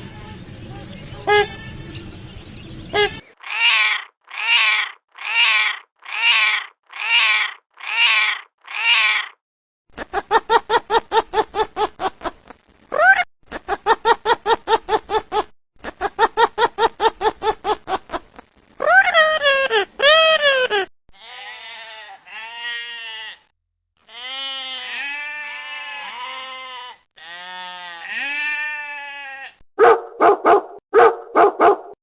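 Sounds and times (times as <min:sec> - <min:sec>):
animal calling: 0:00.1 - 0:02.3, 0:02.9 - 0:09.4.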